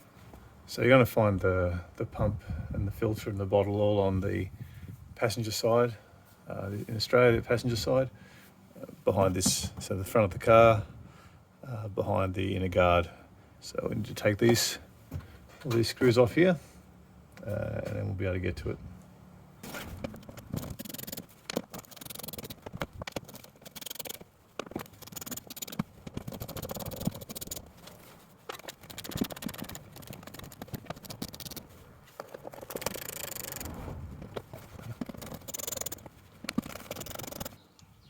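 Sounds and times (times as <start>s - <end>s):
hand tool clicking and scraping: 19.7s - 37.9s.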